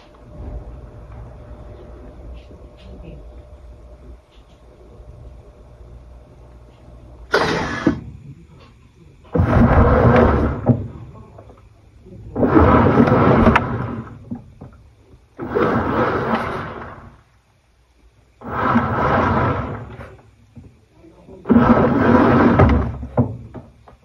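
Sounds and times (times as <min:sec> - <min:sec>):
low steady hum: 0:00.0 - 0:24.0
washing machine drum swishing: 0:09.3 - 0:11.5, 0:12.2 - 0:17.3, 0:18.4 - 0:23.8.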